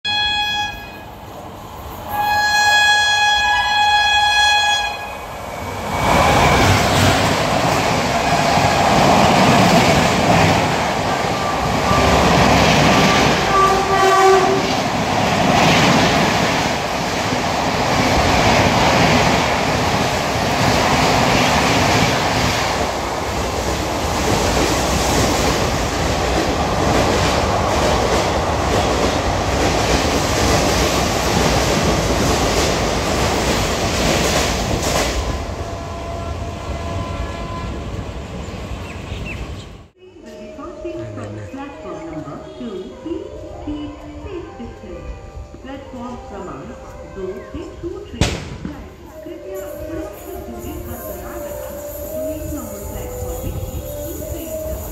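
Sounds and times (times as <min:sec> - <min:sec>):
train coaches rushing past: 0:00.1 - 0:54.9
locomotive air horn blast: 0:02.1 - 0:05.3, 0:13.0 - 0:14.8.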